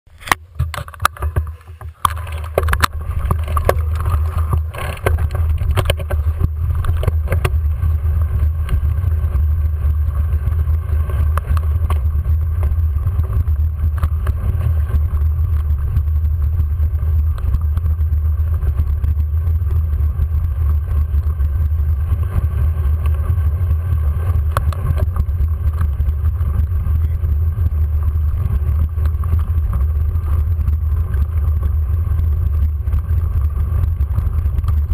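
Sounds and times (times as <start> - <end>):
bicycle ride vibration rumble: 0.0 - 34.9
wind on microphone: 0.1 - 34.9
clicks and knocks: 0.2 - 7.6.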